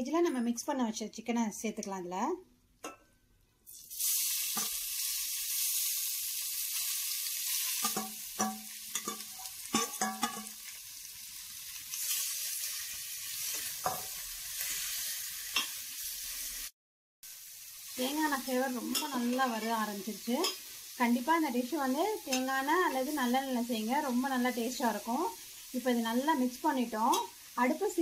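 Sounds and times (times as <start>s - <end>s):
chicken sizzling in hot oil: 3.7s - 28.0s.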